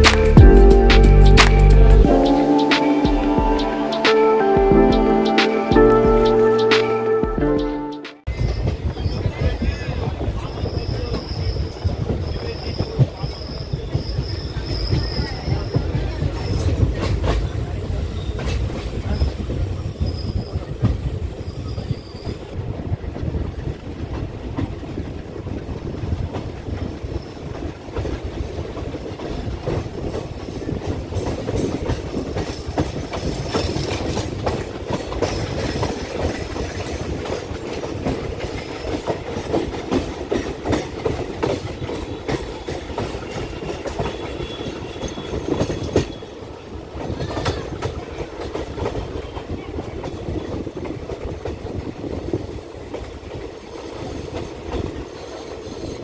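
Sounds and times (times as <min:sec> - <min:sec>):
train wheels rumbling on rail: 0:08.3 - 0:56.0.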